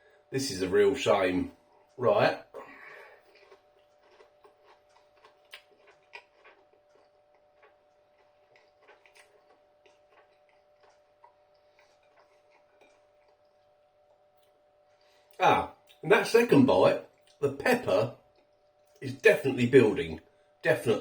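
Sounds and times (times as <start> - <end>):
chewing crunchy food: 1.2 - 16.0, 17.1 - 19.0.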